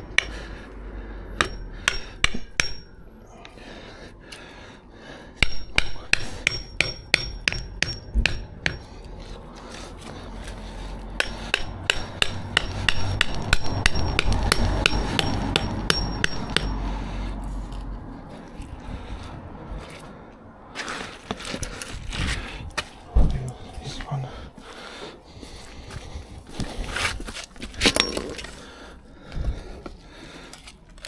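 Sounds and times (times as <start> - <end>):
hammer driving nails into timber: 0.0 - 0.5, 1.4 - 2.9, 5.4 - 8.9, 11.2 - 16.8, 27.8 - 28.6.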